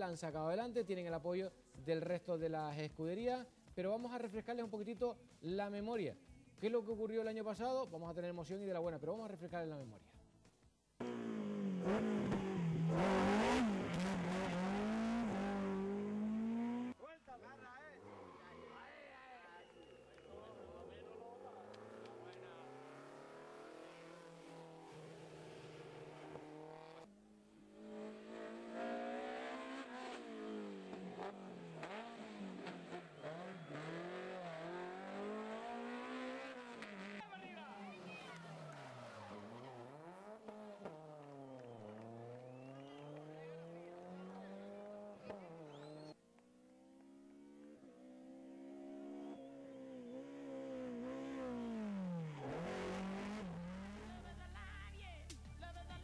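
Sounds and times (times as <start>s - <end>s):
rally car engine revving: 11.0s - 17.0s, 19.6s - 46.2s, 46.8s - 54.5s.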